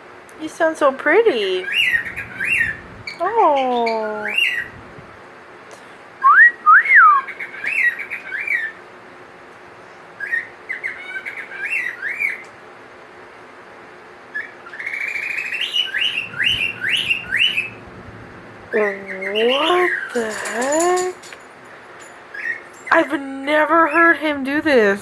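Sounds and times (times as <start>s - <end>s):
cockatiel whistling and chirping: 14.4s - 17.8s.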